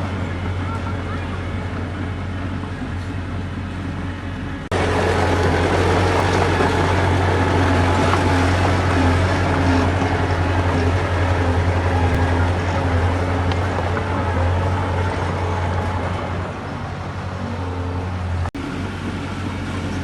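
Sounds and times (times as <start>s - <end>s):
heavy machinery diesel engine: 0.0s - 20.0s.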